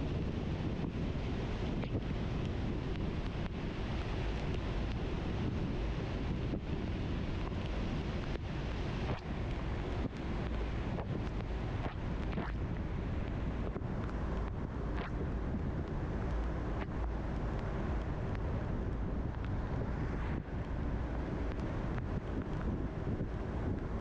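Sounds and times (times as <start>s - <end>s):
car tyres on wet road: 17.7s - 24.0s
faint ticks: 21.4s - 23.9s.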